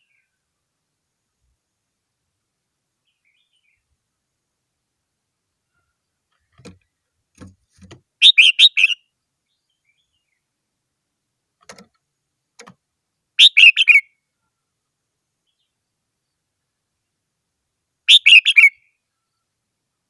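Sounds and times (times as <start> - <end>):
bird singing: 0.0 - 0.4, 3.0 - 3.9, 8.2 - 10.5, 13.4 - 14.6, 18.1 - 19.6
faint soft knocks: 6.4 - 8.0.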